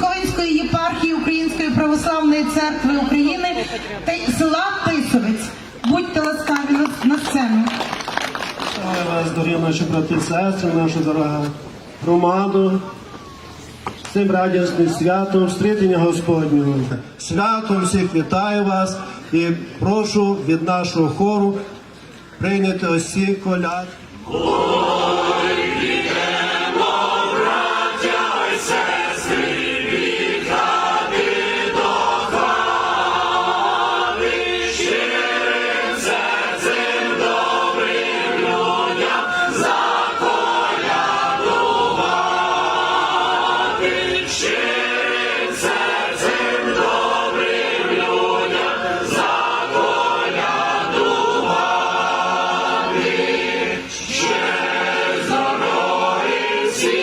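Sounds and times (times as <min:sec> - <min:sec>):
church choir singing: 0:24.2 - 0:57.0.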